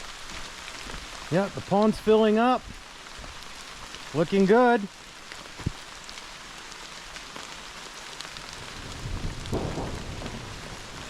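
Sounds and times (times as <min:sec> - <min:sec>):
steady rain: 0:00.0 - 0:11.0
thunder rumble: 0:08.6 - 0:11.0.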